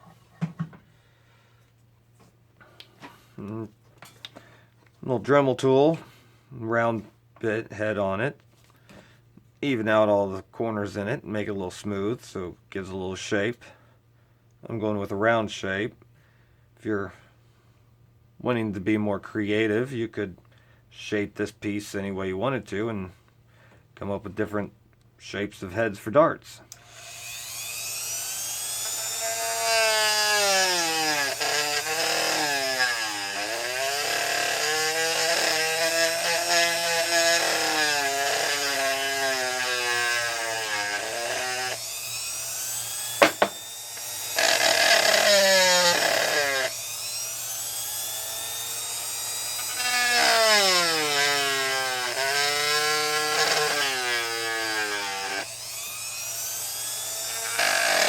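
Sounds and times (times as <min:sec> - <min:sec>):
rotary tool grinding: 0:26.7 - 0:58.0.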